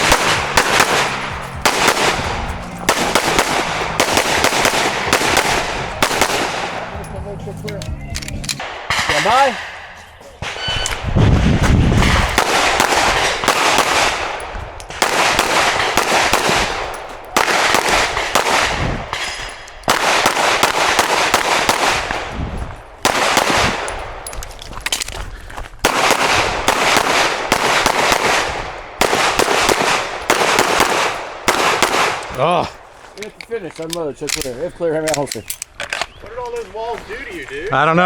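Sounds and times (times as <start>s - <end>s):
rapid pistol fire: 0.0s - 7.0s, 11.4s - 19.3s, 19.9s - 22.4s, 23.0s - 24.2s, 25.8s - 32.3s.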